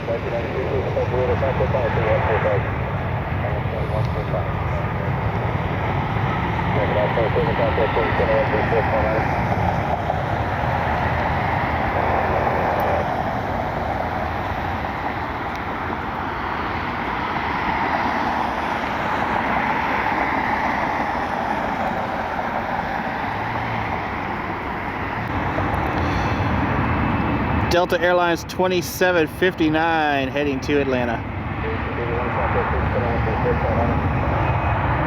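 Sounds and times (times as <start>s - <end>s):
jet engines rushing: 0.0s - 35.0s.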